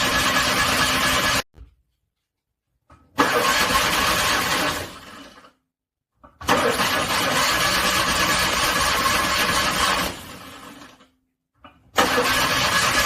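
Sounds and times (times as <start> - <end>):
car engine cranking: 3.2 - 4.8, 6.4 - 10.2, 12.0 - 13.0.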